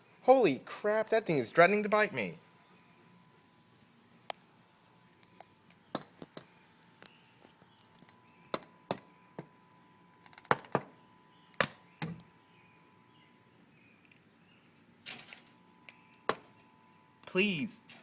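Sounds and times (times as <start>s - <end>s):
faint steady high tone: 15.6s - 17.8s.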